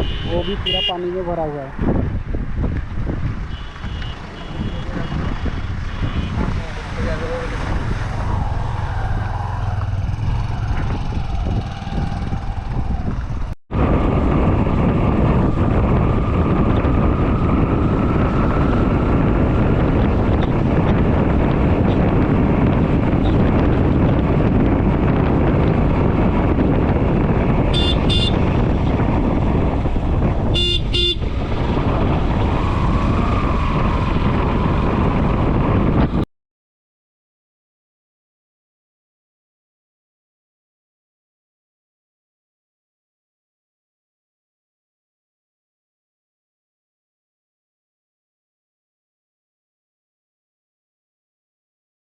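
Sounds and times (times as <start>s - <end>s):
pulsed vehicle horn honking: 0.0s - 1.0s, 3.5s - 5.2s, 27.7s - 28.4s, 30.5s - 31.3s.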